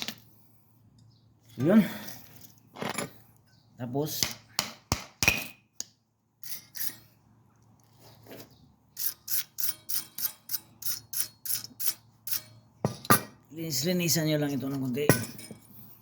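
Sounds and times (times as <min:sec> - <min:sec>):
hand tool scraping steel: 0:06.4 - 0:07.2, 0:08.0 - 0:13.3.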